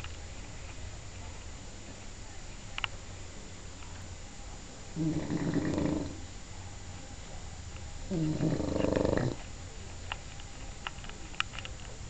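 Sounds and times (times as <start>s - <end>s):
dog snoring: 5.0s - 6.2s, 8.1s - 9.4s.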